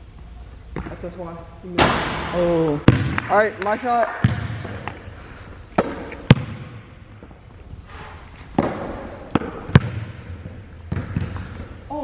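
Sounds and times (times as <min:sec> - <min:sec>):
basketball bouncing: 0:01.8 - 0:03.5, 0:04.2 - 0:05.0, 0:05.8 - 0:06.9, 0:08.5 - 0:11.6.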